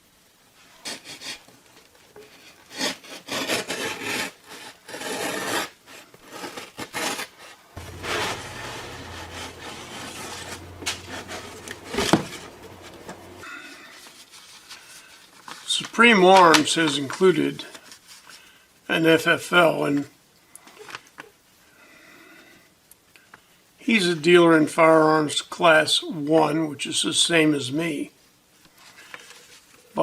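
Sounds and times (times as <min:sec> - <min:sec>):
low hum: 0:07.8 - 0:13.6.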